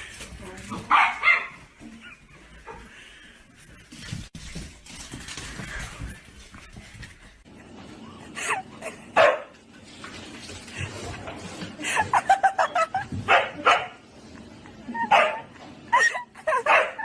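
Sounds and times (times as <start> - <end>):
dog barking: 0.9 - 1.6, 9.2 - 9.5, 13.3 - 14.0, 16.6 - 17.0.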